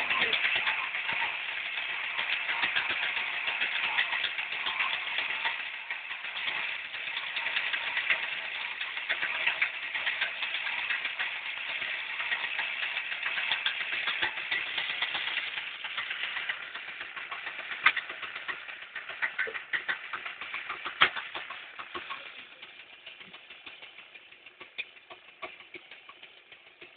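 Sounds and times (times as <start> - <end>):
two-stroke engine rattling: 0.0 - 26.9.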